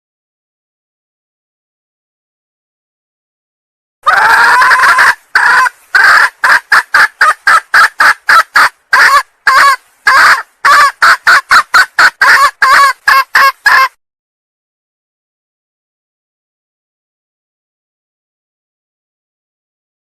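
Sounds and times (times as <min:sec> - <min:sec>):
junglefowl hen calling: 0:04.0 - 0:14.0.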